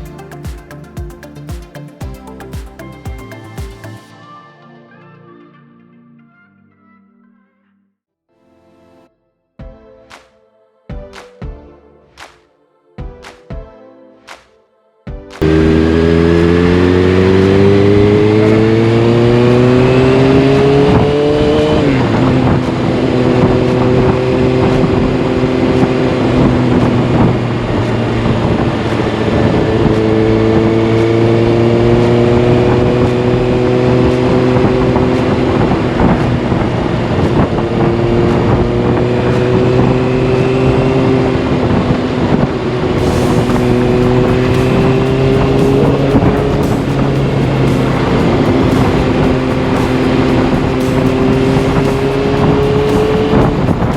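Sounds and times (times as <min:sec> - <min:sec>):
motorcycle engine revving: 0:15.4 - 0:53.9.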